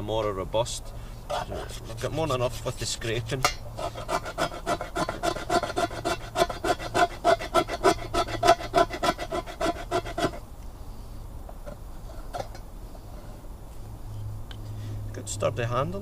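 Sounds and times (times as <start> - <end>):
knife scraping wood: 1.3 - 2.7, 3.8 - 10.4.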